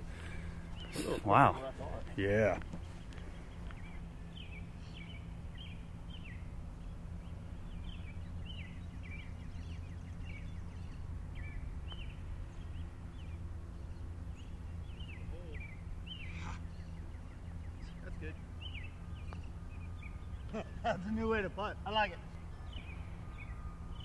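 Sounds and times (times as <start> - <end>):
low outdoor rumble: 0.0 - 24.0
songbird chirping: 0.0 - 24.0.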